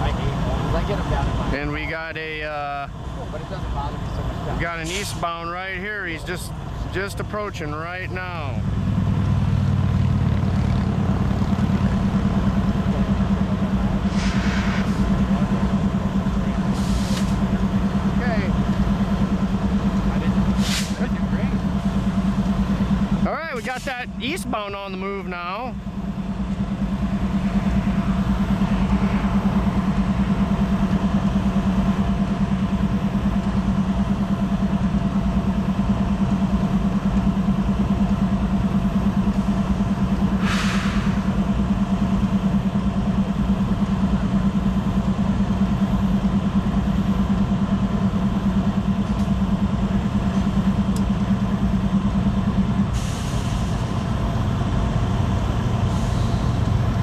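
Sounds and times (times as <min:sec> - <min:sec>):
diesel locomotive engine drone: 0:00.0 - 0:57.0
air hiss: 0:04.8 - 0:05.2, 0:14.0 - 0:15.3, 0:16.7 - 0:17.5, 0:20.6 - 0:21.1, 0:40.4 - 0:41.4.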